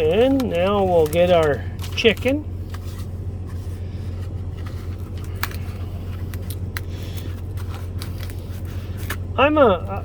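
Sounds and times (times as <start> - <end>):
packaging crinkling: 0.0 - 3.0, 4.4 - 9.2
steady low hum: 0.0 - 10.0.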